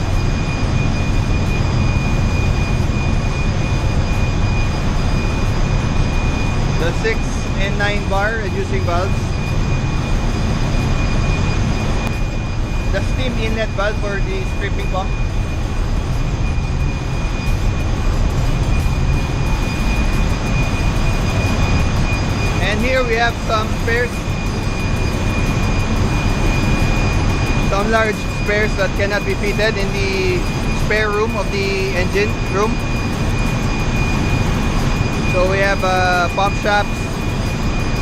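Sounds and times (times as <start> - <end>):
engine room machinery drone: 0.0 - 38.0
high whine: 0.0 - 38.0.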